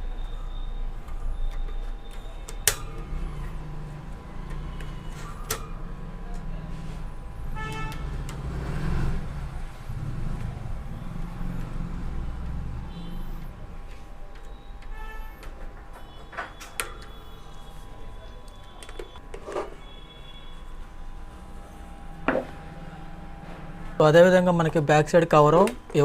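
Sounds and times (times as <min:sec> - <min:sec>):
road traffic rumble: 0:02.2 - 0:19.3, 0:19.9 - 0:25.9
vehicle horn toot: 0:07.5 - 0:08.2, 0:12.8 - 0:13.4, 0:14.9 - 0:15.4, 0:16.0 - 0:20.8.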